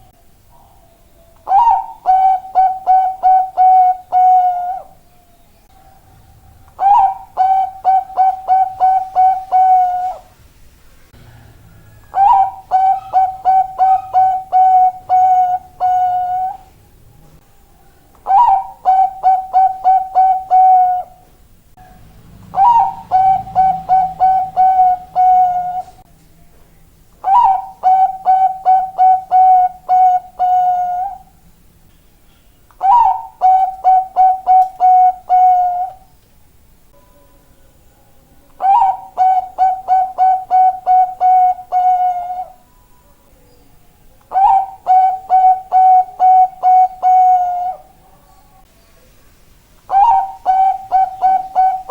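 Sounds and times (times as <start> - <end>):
dove cooing: 0.0 - 5.0, 5.7 - 10.3, 11.2 - 16.7, 18.2 - 21.3, 22.2 - 26.0, 27.2 - 31.4, 32.8 - 36.1, 38.5 - 42.6, 44.3 - 48.2, 49.9 - 51.9.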